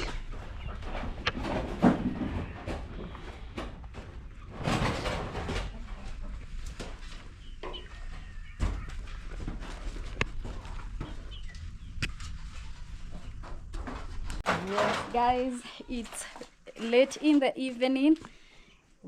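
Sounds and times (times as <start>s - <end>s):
birds chirping faintly: 7.0s - 13.7s
rustling noise: 8.0s - 18.3s.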